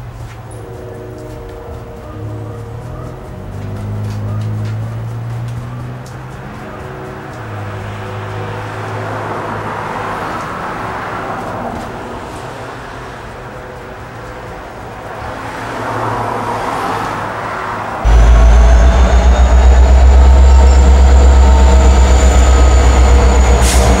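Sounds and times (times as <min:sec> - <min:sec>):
diesel train rumble: 0:00.0 - 0:08.2, 0:18.0 - 0:24.0
traffic noise: 0:00.0 - 0:24.0
high-pitched train tones: 0:00.4 - 0:04.9, 0:18.0 - 0:24.0.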